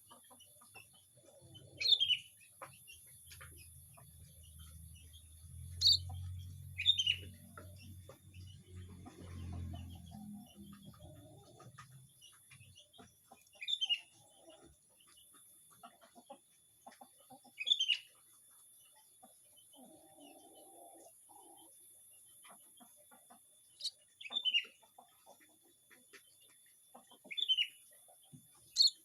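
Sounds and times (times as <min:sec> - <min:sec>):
finches chirping: 0:04.0 - 0:08.6, 0:23.8 - 0:24.7, 0:28.7 - 0:29.0.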